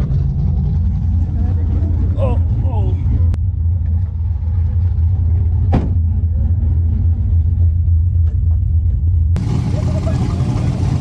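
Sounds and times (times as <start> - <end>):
car engine running: 9.4 - 11.0.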